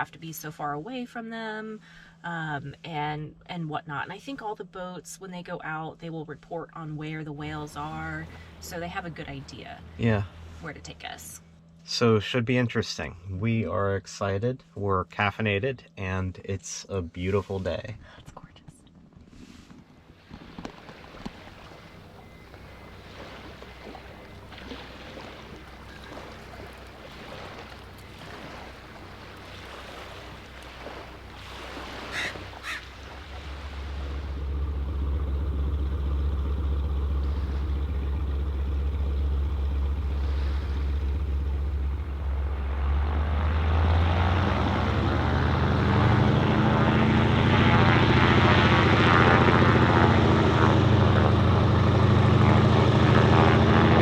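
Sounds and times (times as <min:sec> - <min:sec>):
propeller engine droning: 0:06.3 - 0:16.8, 0:19.8 - 0:54.0.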